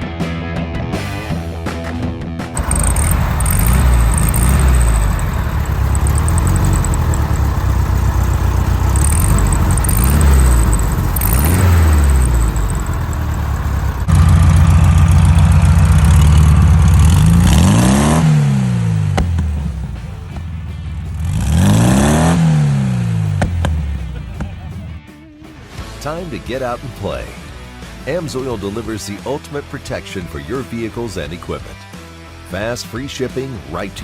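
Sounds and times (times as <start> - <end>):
car engine revving: 2.6 - 25.0.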